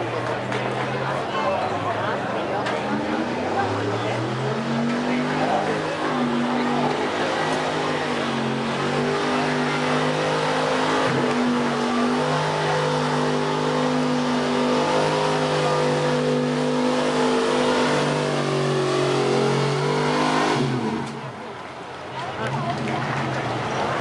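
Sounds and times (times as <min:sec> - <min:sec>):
truck engine revving hard: 0:00.0 - 0:21.6, 0:22.3 - 0:24.0.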